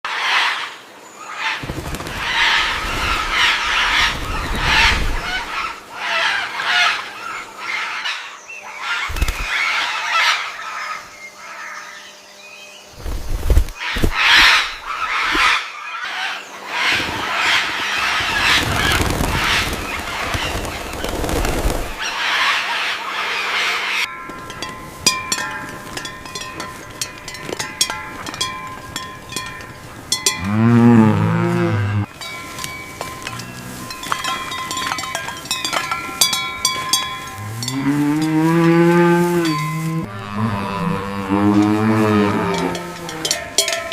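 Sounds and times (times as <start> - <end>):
cow mooing: 30.4 - 32.1, 37.4 - 43.9.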